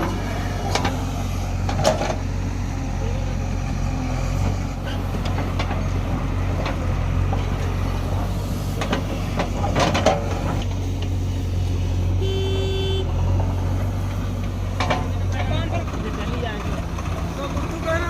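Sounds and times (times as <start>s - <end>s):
heavy diesel engine running: 0.0s - 18.0s
horn-like tone: 12.2s - 13.1s.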